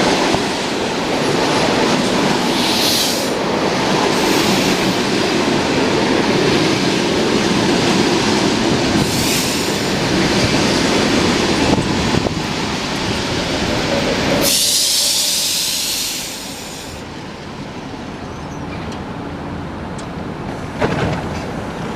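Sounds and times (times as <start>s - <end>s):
train wheels rumbling on rails: 0.0s - 21.9s
loud high hiss: 2.4s - 3.4s, 9.0s - 10.0s, 14.4s - 17.0s.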